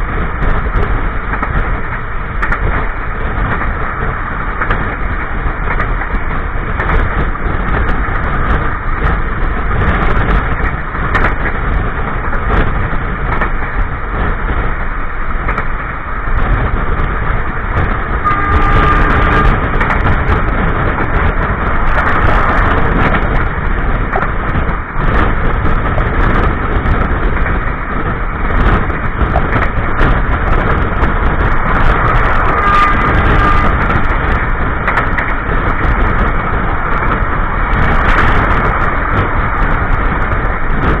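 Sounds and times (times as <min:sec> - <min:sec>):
train wheels rumbling on rails: 0:00.0 - 0:41.0
brief high tone: 0:18.2 - 0:19.6.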